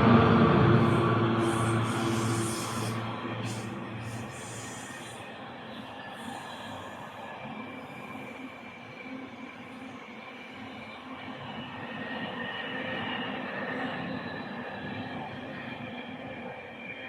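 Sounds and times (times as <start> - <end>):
train rumbling on rails: 0.0 - 8.8
wheels hissing: 0.7 - 5.3.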